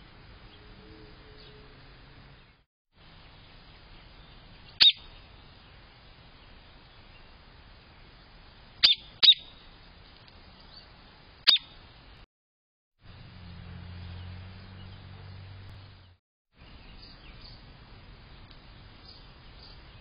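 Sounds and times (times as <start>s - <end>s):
bird chirps sweeping downward: 4.7s - 5.2s, 8.8s - 9.6s, 11.5s - 11.8s.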